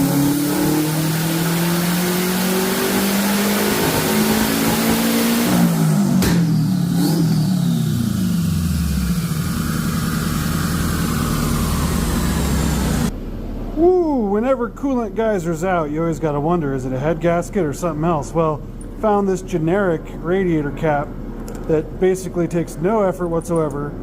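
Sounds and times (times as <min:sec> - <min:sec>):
car engine revving on dyno: 0:00.0 - 0:13.6
turbo whine: 0:00.0 - 0:17.2
exhaust cracks: 0:00.0 - 0:24.0.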